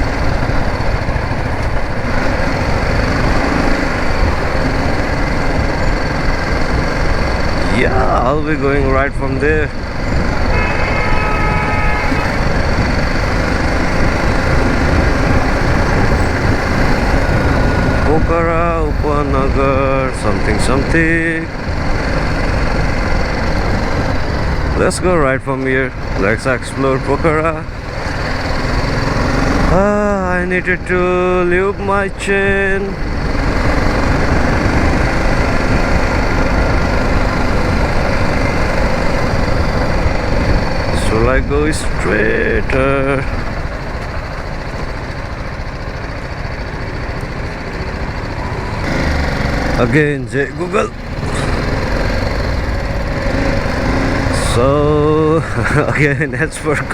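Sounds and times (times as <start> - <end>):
motorcycle engine running: 0.0 - 56.9
road noise: 0.0 - 56.9
vehicle horn: 10.2 - 13.5.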